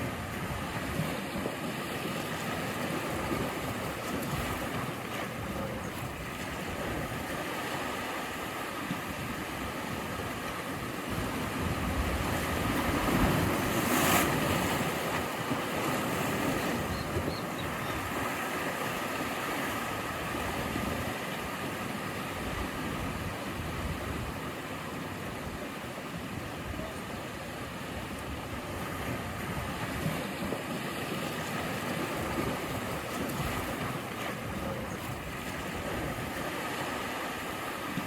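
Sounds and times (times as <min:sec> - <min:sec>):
sea waves washing ashore: 0:00.0 - 0:38.0.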